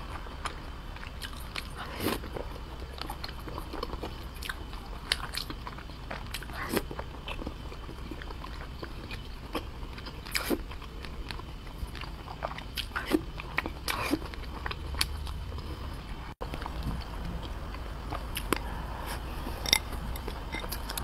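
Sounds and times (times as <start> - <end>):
wet chewing clicks and smacks: 2.4 - 15.7.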